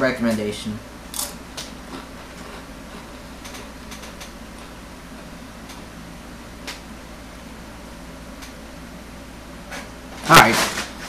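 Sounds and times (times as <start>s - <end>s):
low steady hum: 0.0s - 11.0s
tortilla chip crunching: 1.1s - 4.8s.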